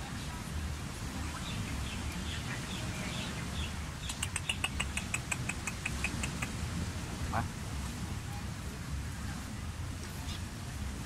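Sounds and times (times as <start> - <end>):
bird chirping: 1.3 - 6.5.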